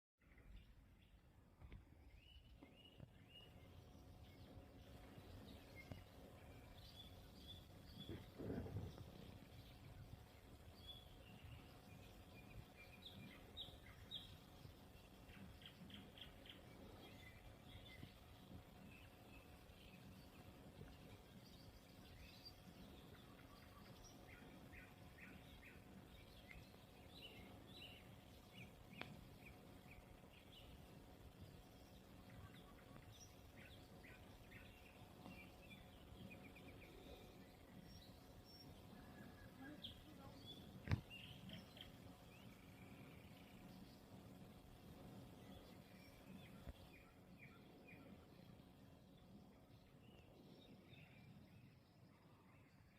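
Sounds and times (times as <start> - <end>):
small birds chirping: 0.2 - 52.9
brief low noise: 7.9 - 10.1.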